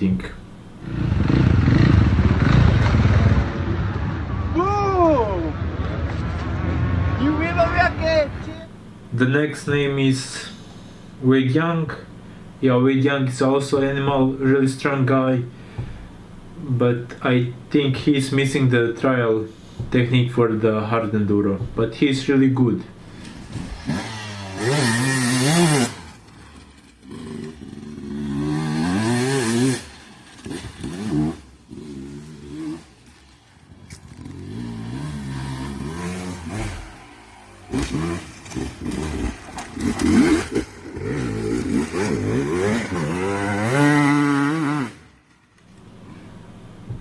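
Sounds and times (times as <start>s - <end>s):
dirt bike engine revving: 0.0s - 47.0s
clattering and scraping: 5.8s - 6.8s.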